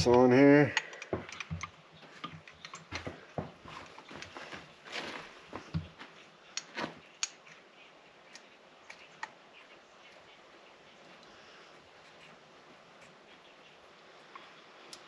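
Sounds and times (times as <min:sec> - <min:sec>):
small engine parts clicking: 0:00.0 - 0:03.1.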